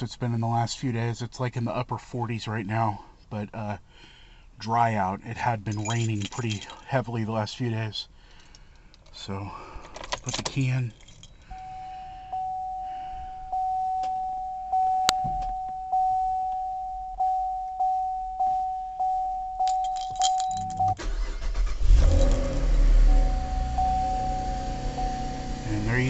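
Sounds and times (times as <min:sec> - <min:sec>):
dashboard warning chime: 0:10.6 - 0:21.4, 0:22.1 - 0:26.0
car engine starting and idling: 0:19.6 - 0:26.0.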